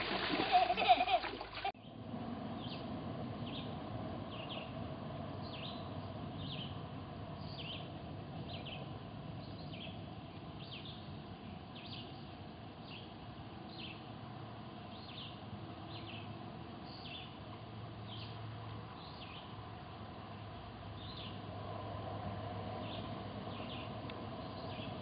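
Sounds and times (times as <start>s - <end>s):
bird chirping: 5.4s - 6.8s.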